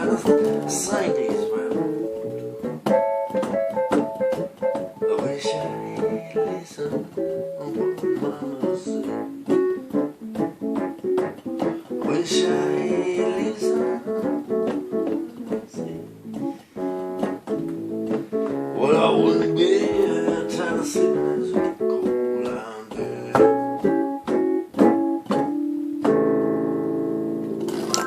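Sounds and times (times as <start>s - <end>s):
acoustic blues guitar: 0.0s - 28.0s.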